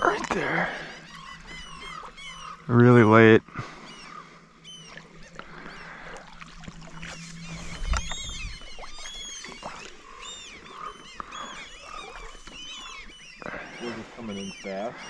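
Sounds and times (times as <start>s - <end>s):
many birds calling: 0.0s - 15.0s.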